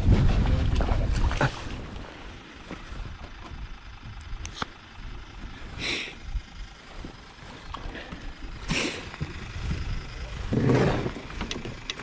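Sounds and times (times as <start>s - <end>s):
wind buffeting microphone: 0.0s - 2.0s, 8.5s - 12.0s.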